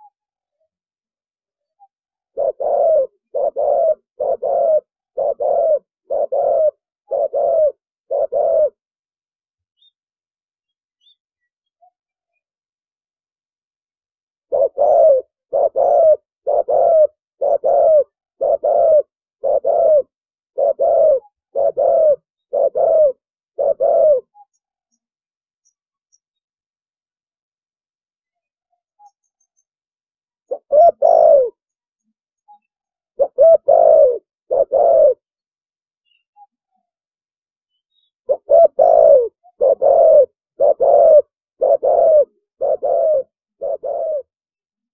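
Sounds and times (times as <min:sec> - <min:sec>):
dove cooing: 0:02.3 - 0:08.8, 0:14.5 - 0:24.6, 0:30.4 - 0:31.7, 0:32.6 - 0:35.3, 0:38.3 - 0:44.4.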